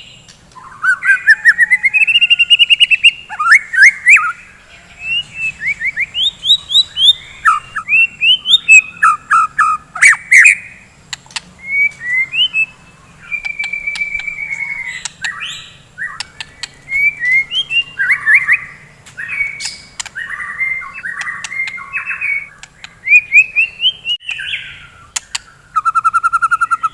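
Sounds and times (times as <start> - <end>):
bird singing whistled phrases: 0.0 - 10.8, 11.6 - 26.9
steady bird trill: 0.0 - 26.9
sharp clicks: 11.1 - 11.5, 13.4 - 14.4, 19.0 - 20.2, 21.1 - 21.8, 22.5 - 23.0.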